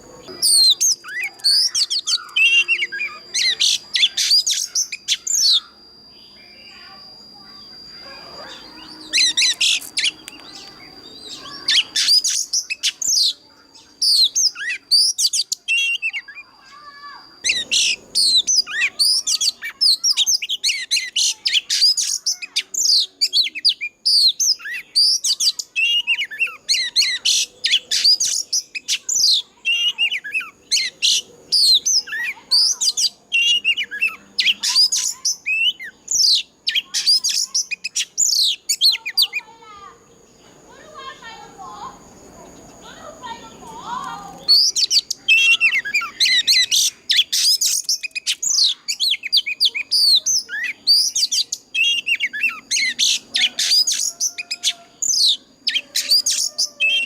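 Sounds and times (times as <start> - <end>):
thin steady high tone: 0.0 - 36.6
bird singing whistles and chirps: 0.0 - 39.7, 42.6 - 57.0.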